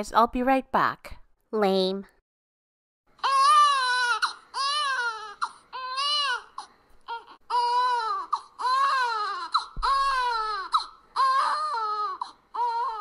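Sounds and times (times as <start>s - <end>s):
baby crying: 3.2s - 13.0s.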